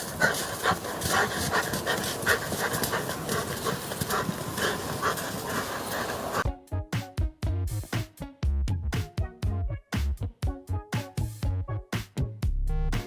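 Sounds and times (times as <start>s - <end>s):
dog panting: 0.0s - 6.4s.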